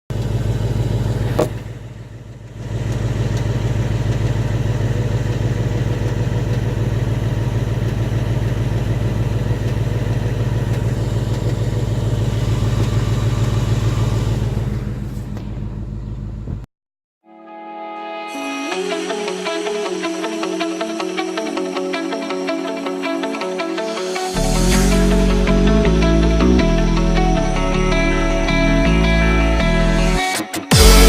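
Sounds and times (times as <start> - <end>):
car engine running: 0.1 - 16.7, 24.1 - 31.0.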